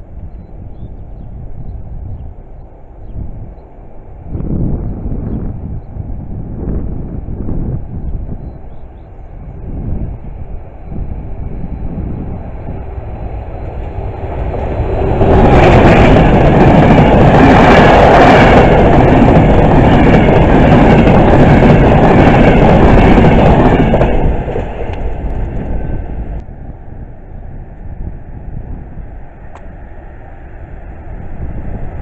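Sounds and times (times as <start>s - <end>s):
passenger train passing: 0.0s - 32.0s.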